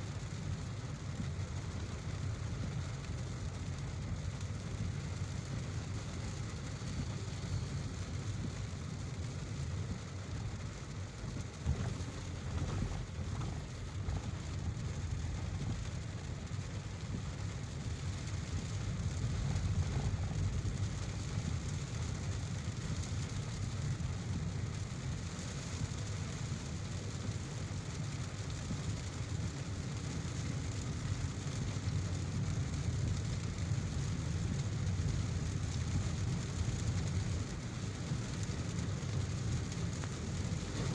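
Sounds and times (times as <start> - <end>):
car road rumble: 5.1 - 27.0, 35.4 - 40.9
rain hissing: 5.2 - 26.8, 30.2 - 40.9.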